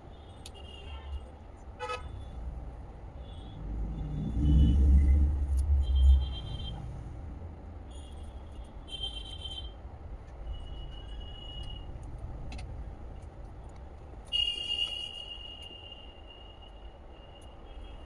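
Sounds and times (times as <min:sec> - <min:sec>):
vehicle engine rumble: 0:01.2 - 0:15.0.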